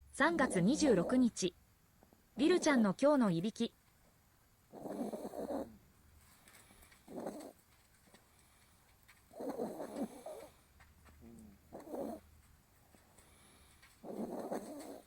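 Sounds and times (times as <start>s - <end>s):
dog snoring: 4.7s - 5.8s, 7.0s - 7.6s, 9.3s - 10.6s, 11.2s - 12.2s, 13.3s - 15.0s.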